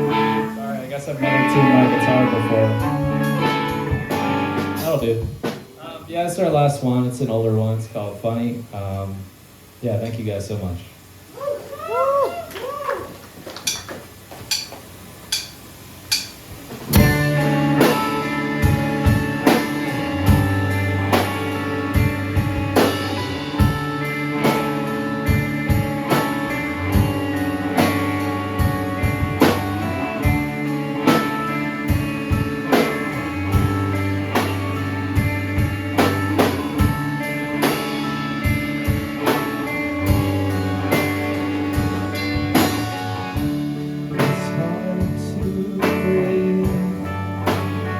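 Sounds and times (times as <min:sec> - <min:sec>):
rock band playing: 0:00.0 - 0:06.0, 0:16.1 - 0:47.9.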